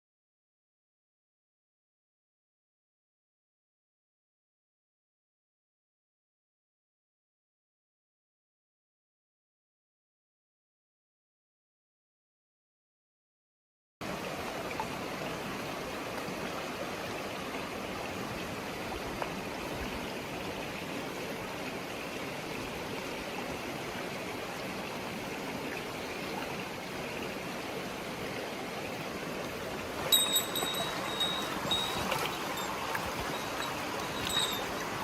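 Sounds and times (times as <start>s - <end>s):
stream rushing over rocks: 14.0s - 35.0s.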